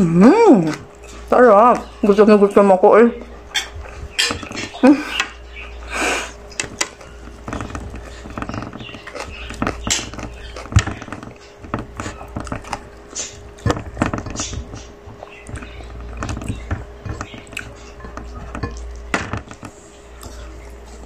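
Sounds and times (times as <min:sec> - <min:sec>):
faint steady hum: 0:00.0 - 0:21.0
person chewing and lip-smacking: 0:09.0 - 0:13.7.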